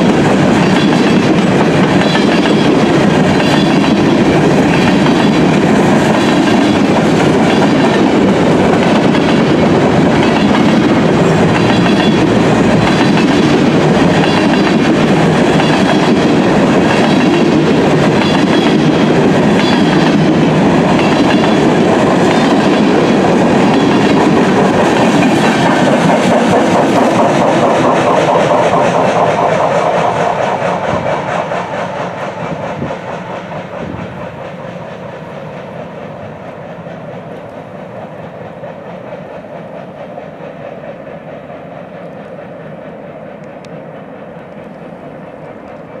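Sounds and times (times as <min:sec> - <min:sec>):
wheels clacking over rail joints: 0:00.0 - 0:36.0
freight train rolling past: 0:00.0 - 0:46.0.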